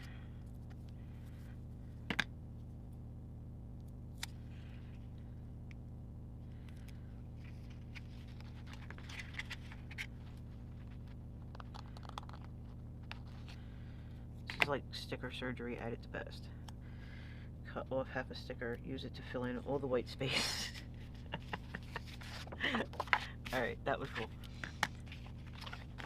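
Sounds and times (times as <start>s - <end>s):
steady low hum: 0.0s - 26.0s
paper rustling: 7.4s - 11.2s, 20.6s - 26.0s.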